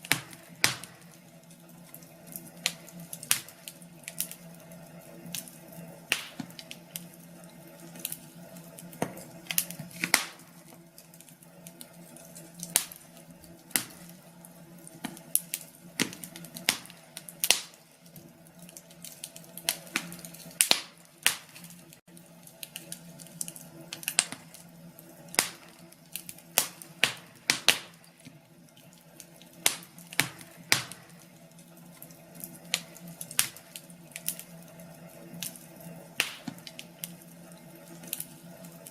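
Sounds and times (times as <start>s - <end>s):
sharp pops of fire: 0.0s - 1.2s, 2.3s - 4.4s, 5.3s - 7.1s, 8.9s - 10.6s, 12.6s - 13.1s, 13.7s - 14.2s, 15.0s - 17.8s, 19.0s - 21.8s, 22.7s - 24.6s, 25.3s - 28.3s, 29.5s - 31.2s, 32.4s - 34.5s, 36.2s - 37.2s
wood fire crackling: 0.0s - 38.9s.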